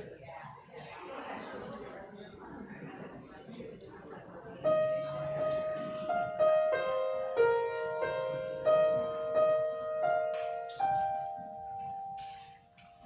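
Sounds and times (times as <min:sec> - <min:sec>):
slow piano melody: 0:04.7 - 0:13.0.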